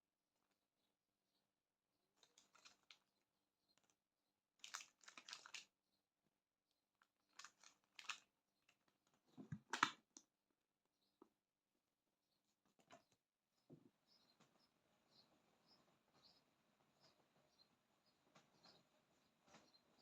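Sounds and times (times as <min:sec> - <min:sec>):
crinkling and rustling: 0:02.2 - 0:03.1, 0:04.6 - 0:05.7, 0:07.0 - 0:10.2, 0:18.3 - 0:20.0.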